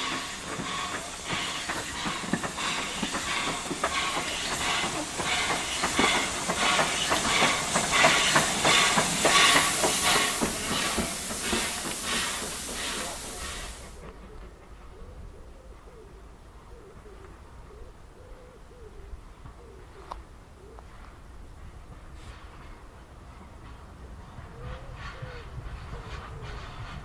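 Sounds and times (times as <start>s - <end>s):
steam engine rhythmic beats: 0.0s - 14.0s
steam hissing: 0.0s - 14.1s.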